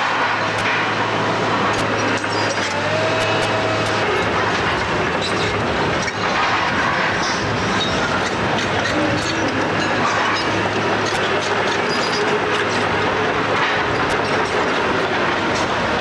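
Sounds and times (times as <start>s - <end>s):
diesel engine humming: 0.0s - 16.0s
metal squeal: 7.3s - 12.3s.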